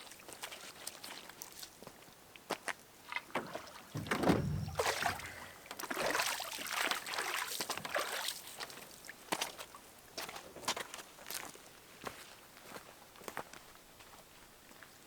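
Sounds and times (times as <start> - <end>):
water swishing and sloshing: 3.4 - 7.7
hollow knock on canoe: 4.0 - 5.5.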